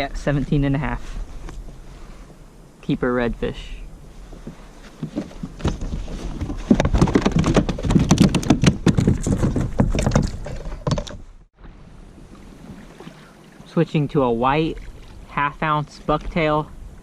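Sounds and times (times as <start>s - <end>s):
knocking and clattering on a kayak: 4.4s - 11.3s.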